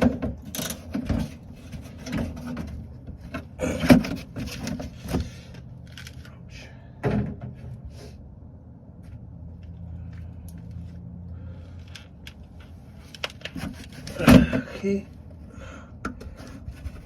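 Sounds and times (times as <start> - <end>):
parts clicking and rattling: 0.0 - 6.4, 11.6 - 14.7.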